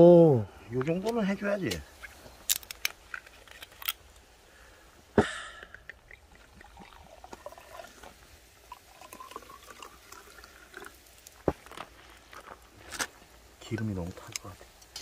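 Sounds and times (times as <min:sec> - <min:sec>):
liquid trickling into glass: 0:05.9 - 0:11.1
beer pouring into glass: 0:05.9 - 0:11.4.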